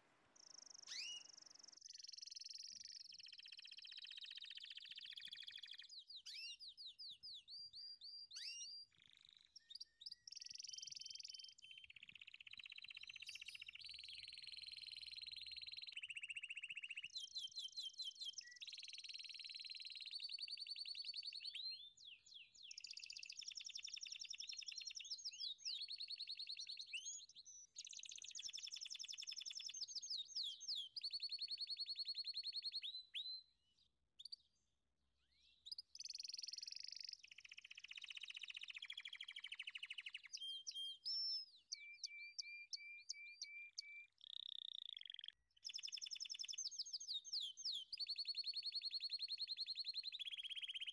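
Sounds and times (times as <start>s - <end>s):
birds chirping and trilling: 0.4s - 2.0s.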